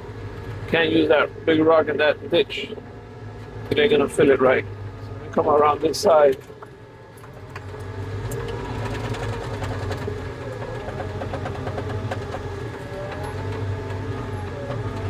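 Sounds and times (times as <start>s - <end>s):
skid steer diesel engine running: 0.0s - 15.0s
light clatter: 6.2s - 15.0s.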